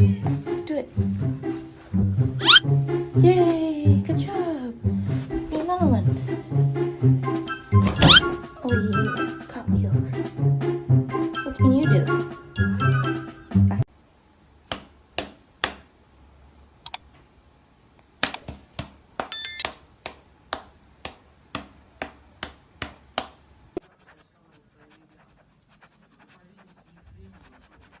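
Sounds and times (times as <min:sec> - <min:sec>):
sharp scratching strokes: 0:23.8 - 0:28.0.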